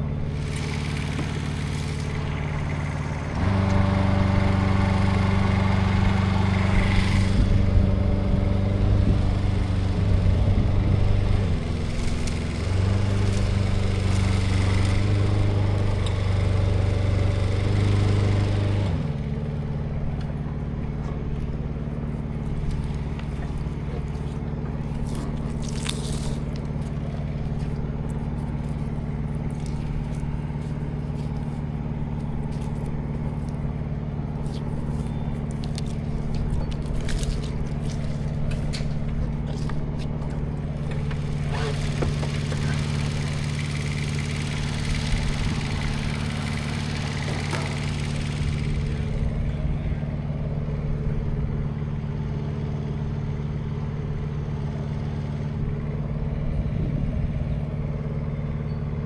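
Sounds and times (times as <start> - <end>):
engine running: 0.0 - 59.0
light clicks and scrapes: 22.0 - 41.9.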